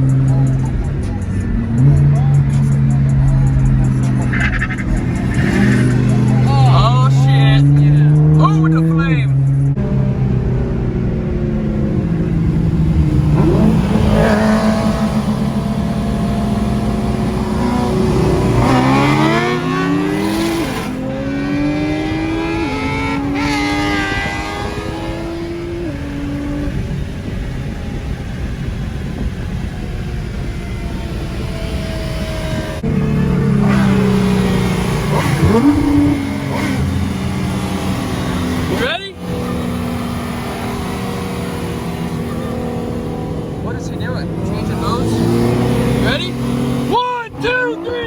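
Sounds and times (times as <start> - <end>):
car engine accelerating: 0.0 - 48.0.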